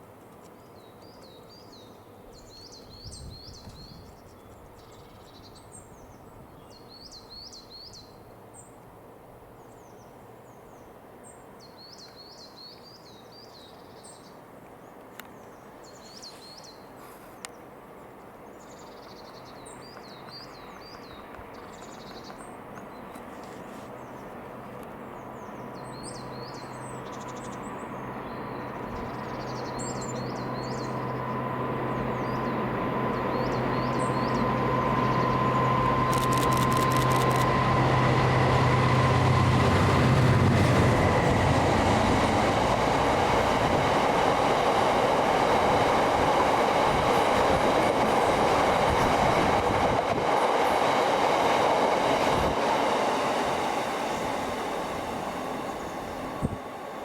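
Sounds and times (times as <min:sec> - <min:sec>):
songbird singing: 0:00.3 - 0:08.9, 0:09.6 - 0:49.8
train rumble: 0:19.6 - 0:57.0
steady engine hum: 0:24.0 - 0:57.0.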